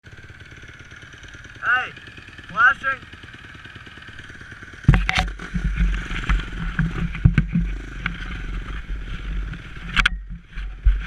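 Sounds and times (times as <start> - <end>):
dirt bike engine idling: 0.0 - 11.0
microphone rumble and scraping: 4.9 - 11.0.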